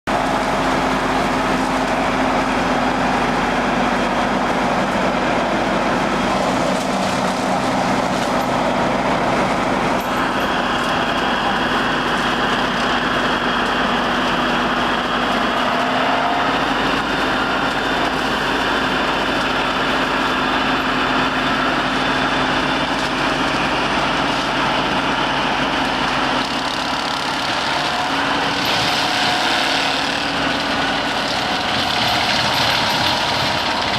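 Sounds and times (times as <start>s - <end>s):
tractor diesel engine: 0.0s - 33.9s
mulcher cutter drum spinning: 0.1s - 33.9s.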